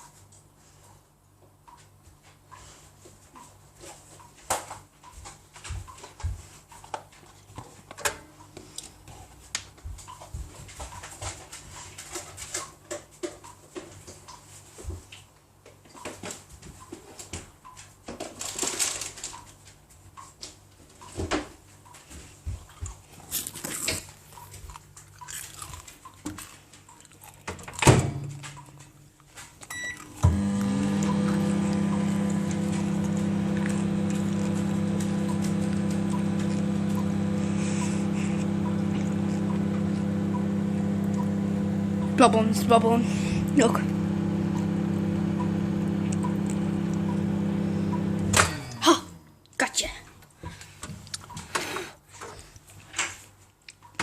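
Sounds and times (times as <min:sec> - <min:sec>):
microwave oven humming: 0:29.7 - 0:49.4.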